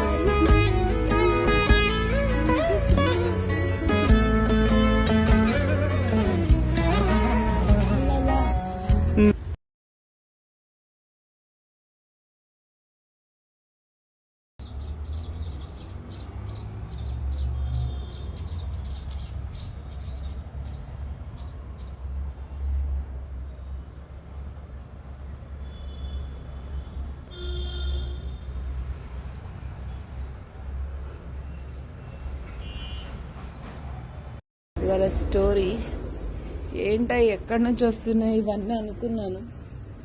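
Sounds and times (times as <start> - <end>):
small birds chirping: 14.6 - 34.4.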